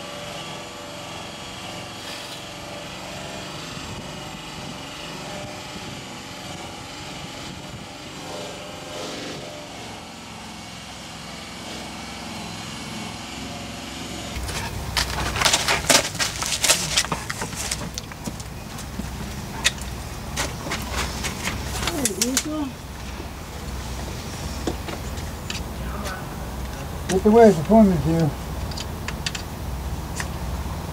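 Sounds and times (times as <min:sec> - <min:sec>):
steady motor drone: 0:00.0 - 0:30.9
sharp knocks and clatters: 0:14.4 - 0:22.5.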